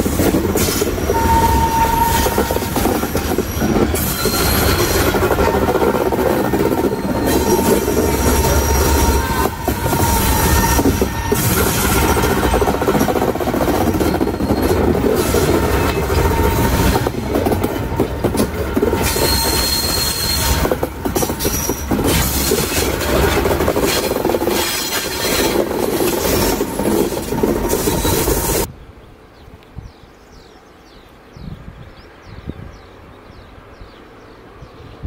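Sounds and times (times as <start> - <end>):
train wheels clattering over rail joints: 0.0 - 28.7
high wheel squeal: 0.6 - 13.1, 13.7 - 17.1, 19.0 - 22.9, 24.6 - 28.7.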